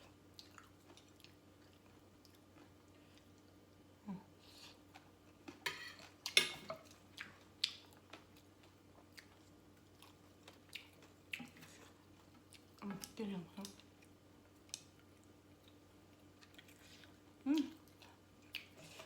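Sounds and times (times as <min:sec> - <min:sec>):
person chewing crunchy food: 0:00.0 - 0:03.6, 0:04.6 - 0:12.8.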